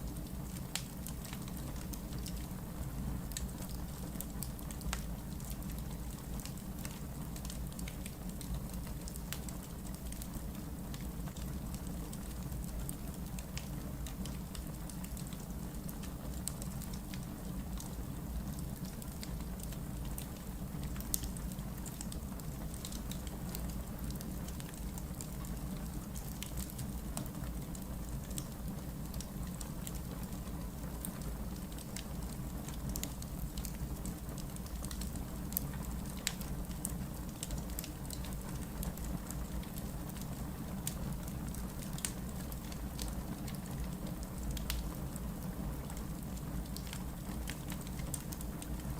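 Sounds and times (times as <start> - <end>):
fire crackling and popping: 0.0 - 48.9.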